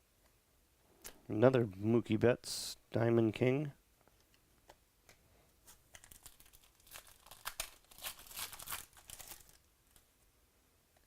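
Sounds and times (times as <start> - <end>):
card pack wrapper tearing and crinkling: 5.7 - 10.0.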